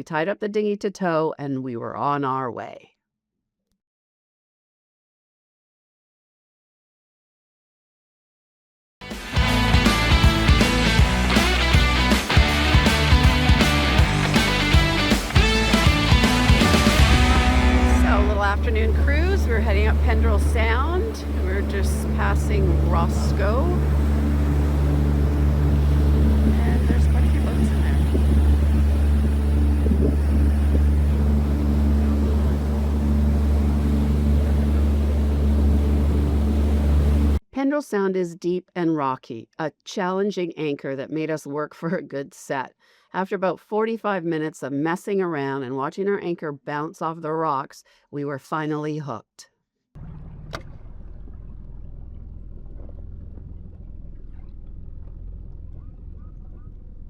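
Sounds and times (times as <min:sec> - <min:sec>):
power boat engine droning: 0:09.4 - 0:37.4, 0:50.0 - 0:57.0.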